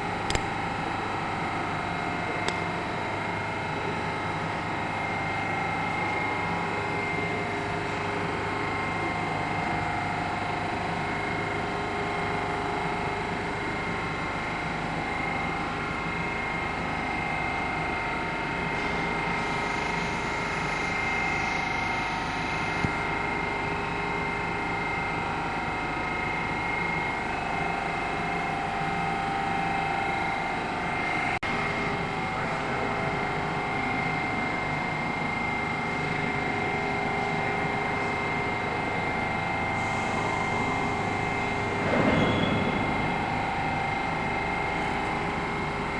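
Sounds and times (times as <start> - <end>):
metro train running: 0.0 - 21.4, 22.0 - 45.9
short click: 0.3 - 0.5.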